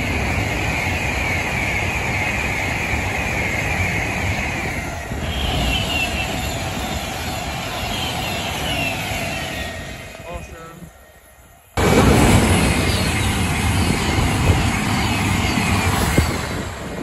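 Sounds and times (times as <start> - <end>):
train passing at high speed: 0.0 - 17.0
falling whistling tones: 0.1 - 11.8.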